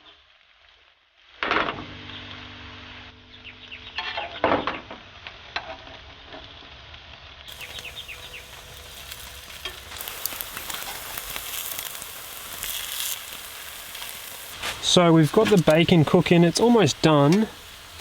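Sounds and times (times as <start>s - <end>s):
bacon sizzling in a pan: 7.5s - 18.0s.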